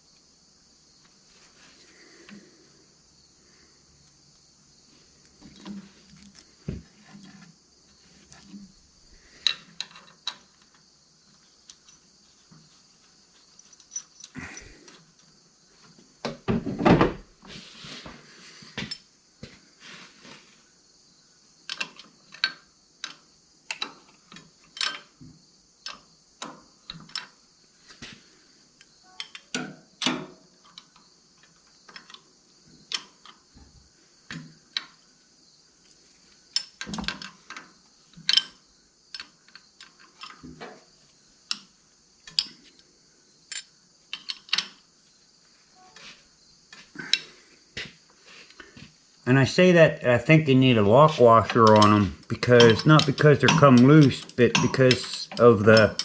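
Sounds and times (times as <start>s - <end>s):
hand tools clicking and knocking: 9.4s - 10.8s, 21.7s - 25.2s, 25.8s - 27.4s, 32.9s - 33.4s, 36.5s - 40.8s, 41.5s - 42.8s, 43.5s - 44.8s, 50.8s - 56.0s.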